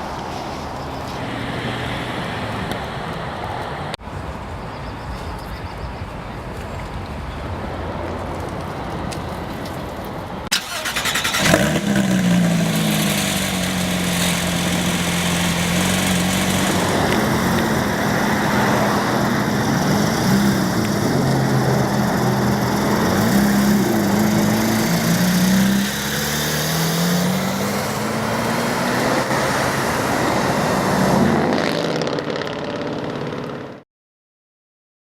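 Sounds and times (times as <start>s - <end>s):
car engine starting and idling: 10.5s - 31.0s.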